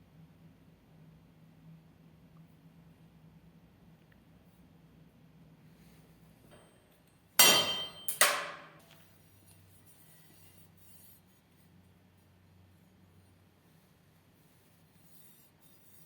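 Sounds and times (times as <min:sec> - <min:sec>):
hatchet blows ringing: 0:07.4 - 0:08.8.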